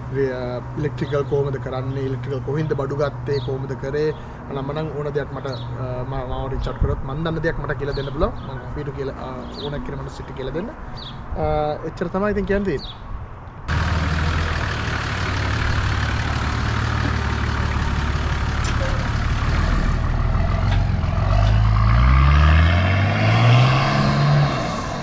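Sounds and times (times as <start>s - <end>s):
diesel engine pulling under load: 13.7s - 25.0s.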